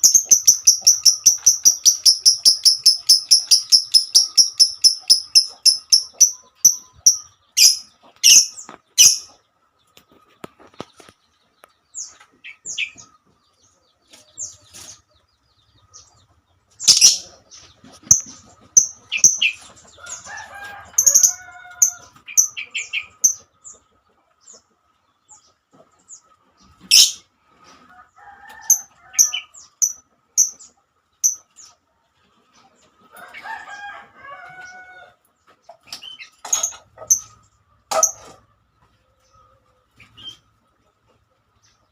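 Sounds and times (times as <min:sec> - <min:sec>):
bird chirping: 0:00.0 - 0:20.4, 0:21.0 - 0:27.3, 0:29.1 - 0:31.8.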